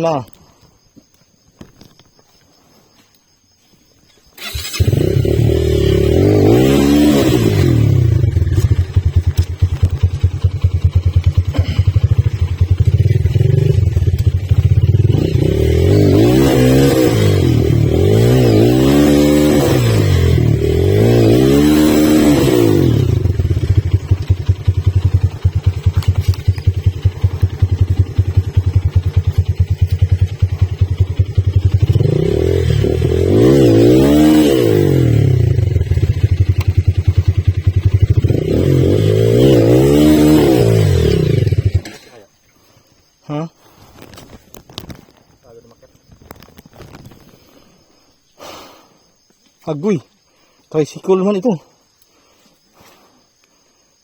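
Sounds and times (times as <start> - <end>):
motorcycle engine running: 4.4 - 42.0.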